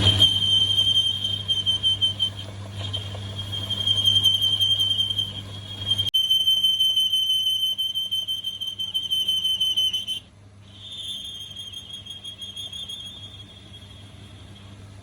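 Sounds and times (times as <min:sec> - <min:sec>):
high-pitched whine: 0:00.0 - 0:15.0.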